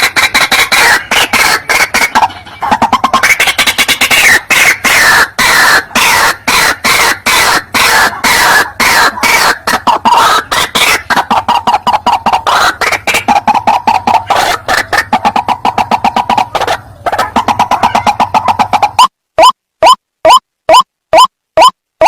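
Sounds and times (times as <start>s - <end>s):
bird harsh croaking calls: 0.0s - 19.1s.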